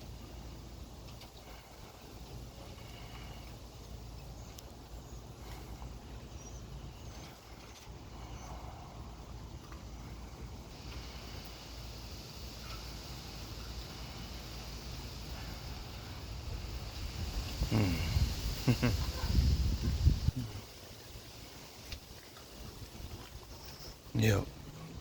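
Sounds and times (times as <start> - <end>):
hiss of wind: 0.0 - 25.0
small birds chirping: 0.8 - 25.0
wind buffeting microphone: 16.0 - 20.8.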